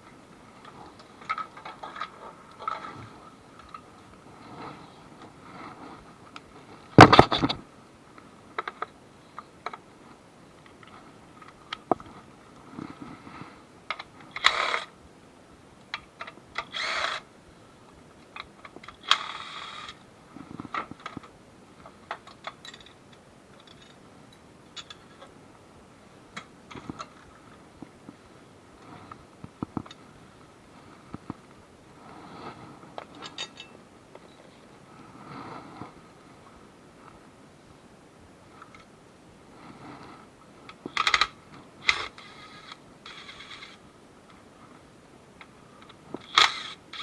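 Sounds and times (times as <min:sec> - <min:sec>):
hand tools and metal clanking: 0:22.1 - 0:25.3, 0:33.0 - 0:34.3.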